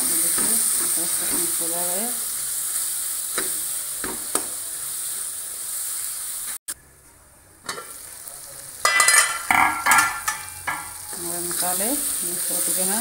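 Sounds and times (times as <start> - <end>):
masala sizzling in a pan: 0.0 - 13.0
metal spoon stirring and scraping: 8.8 - 11.8
metal clink: 8.9 - 11.0.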